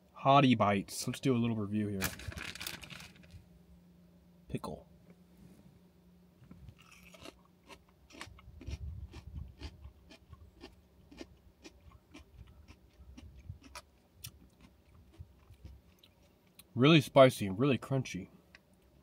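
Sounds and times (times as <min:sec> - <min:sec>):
person chewing crunchy food: 0:06.7 - 0:16.7.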